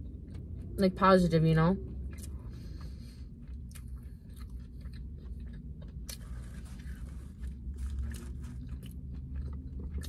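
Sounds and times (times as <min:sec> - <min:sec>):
steady low hum: 0:00.0 - 0:10.0
close-up chewing: 0:01.8 - 0:10.0
soft crunches: 0:05.8 - 0:09.0.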